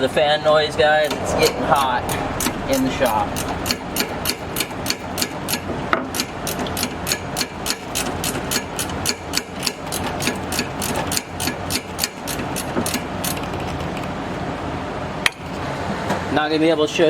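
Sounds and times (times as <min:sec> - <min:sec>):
shop fan humming: 0:00.0 - 0:17.0
ratchet wrench clicking: 0:01.0 - 0:14.0.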